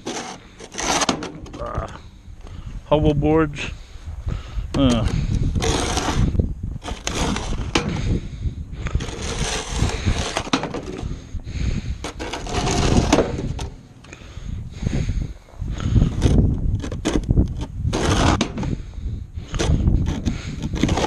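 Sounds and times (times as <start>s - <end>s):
snow shovel scraping snow: 0.0s - 1.3s, 5.6s - 8.0s, 8.9s - 11.2s, 12.0s - 13.7s, 17.9s - 18.7s, 19.6s - 21.0s.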